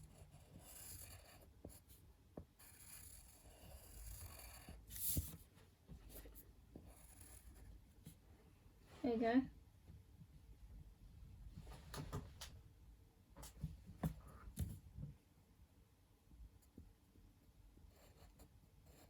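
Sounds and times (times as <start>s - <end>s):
pencil scratching on paper: 0.0s - 5.4s, 6.1s - 8.2s, 17.9s - 19.0s.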